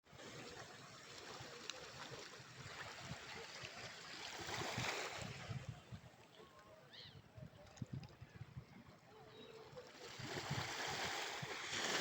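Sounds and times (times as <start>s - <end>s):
sea waves washing on sand: 10.0s - 12.0s.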